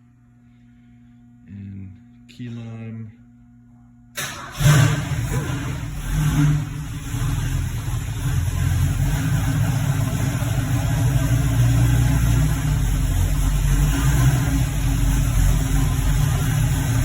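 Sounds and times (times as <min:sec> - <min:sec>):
car engine idling: 0:04.2 - 0:17.0.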